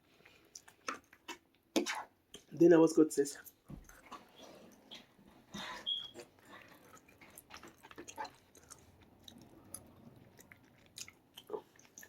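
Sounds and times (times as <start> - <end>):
person chewing food: 0.0 - 2.5, 3.8 - 12.0
wet mouth clicks and smacks: 0.5 - 2.5, 6.9 - 12.0.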